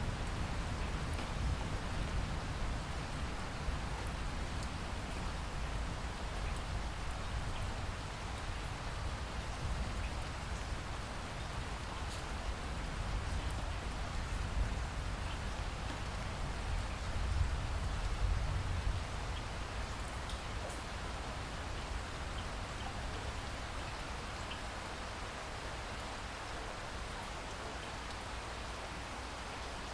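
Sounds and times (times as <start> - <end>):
steady rain hiss: 0.0 - 29.9
raindrop ticks: 20.2 - 20.9.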